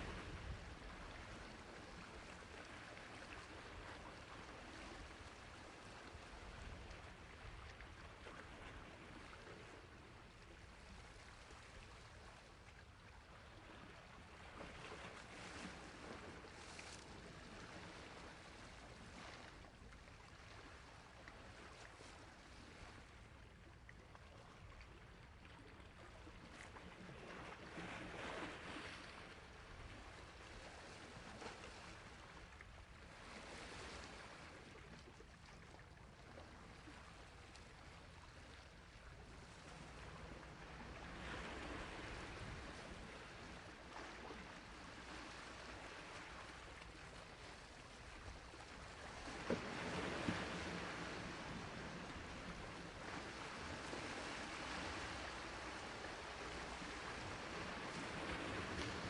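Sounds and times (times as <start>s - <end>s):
surf washing on shore: 48.9s - 59.0s.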